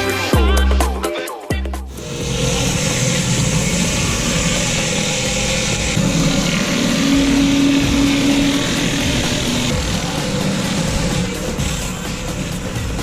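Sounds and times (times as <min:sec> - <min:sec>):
water jet hissing on paving: 0:01.9 - 0:11.4
pressure washer engine hum: 0:01.9 - 0:13.0.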